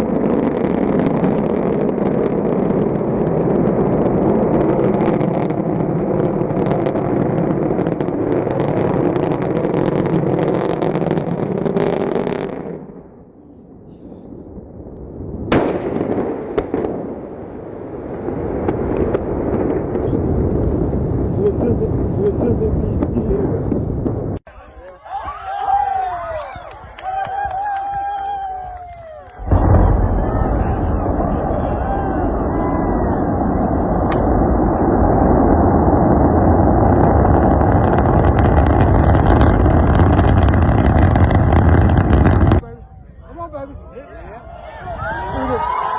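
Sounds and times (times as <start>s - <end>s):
rocket blast rumble: 0.0s - 24.5s, 27.3s - 45.9s
sharp crackling pops: 34.0s - 34.8s, 36.2s - 42.6s.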